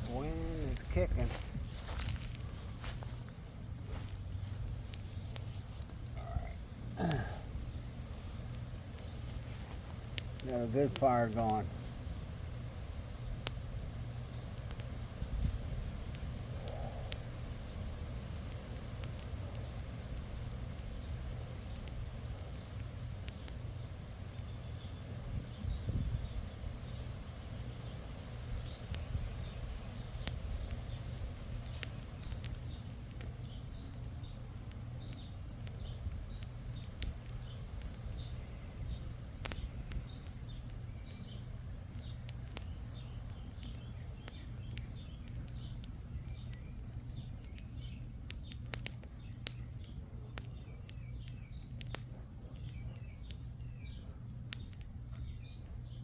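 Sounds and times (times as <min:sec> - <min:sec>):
wind rumbling on microphone: 0:00.0 - 0:03.1, 0:12.8 - 0:18.6, 0:24.8 - 0:27.1
campfire crackling: 0:00.0 - 0:56.0
bird chirping: 0:27.7 - 0:56.0.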